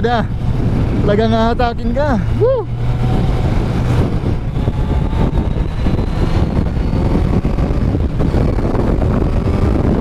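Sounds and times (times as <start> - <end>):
wind rushing over microphone: 0.0 - 10.0
motorcycle engine revving hard: 0.2 - 10.0.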